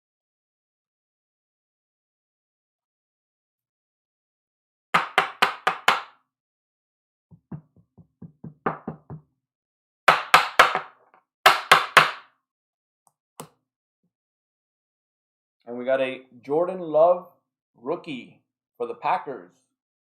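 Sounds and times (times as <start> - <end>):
sharp knocks: 7.3 - 9.2.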